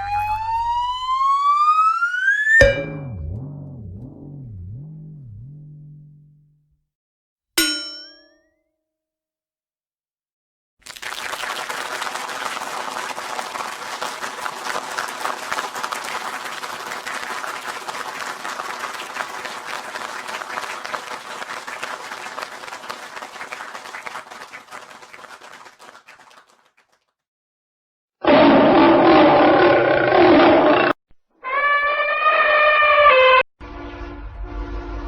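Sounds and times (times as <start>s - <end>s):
crowd applause: 10.8s - 27.0s.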